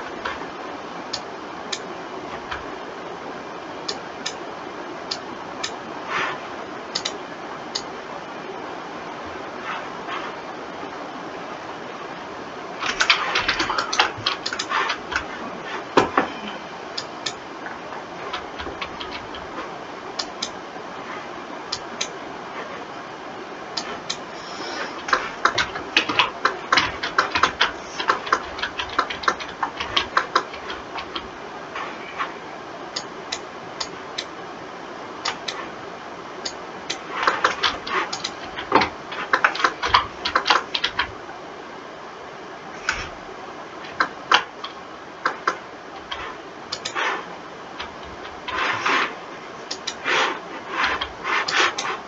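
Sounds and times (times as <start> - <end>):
faint steady hiss: 0.0 - 52.0
keyboard and mouse clicking: 5.1 - 5.8, 6.9 - 7.9, 12.8 - 15.4, 17.0 - 19.6, 20.2 - 20.6, 23.8 - 31.3, 35.2 - 35.6, 36.4 - 41.1, 43.8 - 47.2, 47.8 - 49.1, 49.7 - 52.0.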